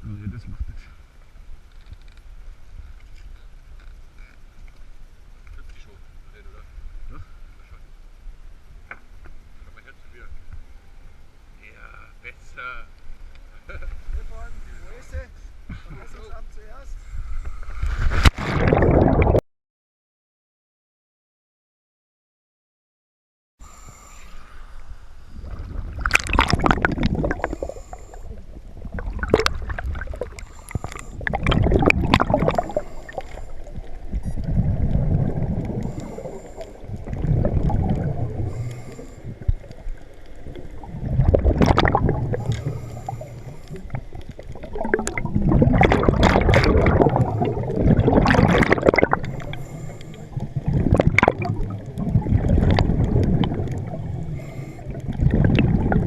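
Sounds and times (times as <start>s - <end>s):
bubbles gurgling underwater: 18.4s - 19.4s, 25.4s - 56.0s
regulator breath hissing: 23.6s - 25.4s, 27.4s - 28.4s, 30.4s - 31.2s, 38.4s - 39.5s, 42.4s - 44.0s, 49.2s - 50.4s, 54.3s - 55.1s.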